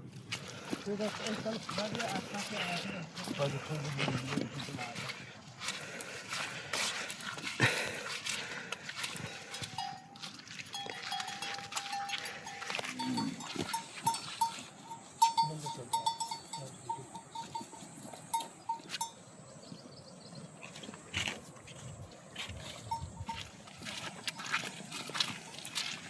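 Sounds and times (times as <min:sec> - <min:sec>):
livestock bell clinking: 0:07.6 - 0:19.4, 0:22.6 - 0:24.6.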